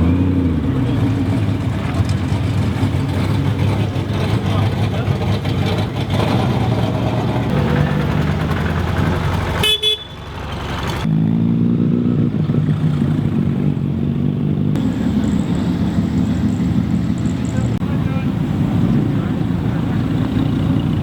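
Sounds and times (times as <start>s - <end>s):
car engines running: 0.0s - 21.0s
car horn toot: 9.6s - 10.3s.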